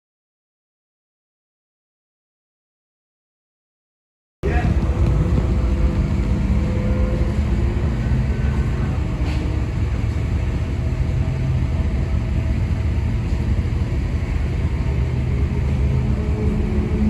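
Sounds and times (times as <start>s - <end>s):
race car engine running at low revs: 4.4s - 17.0s.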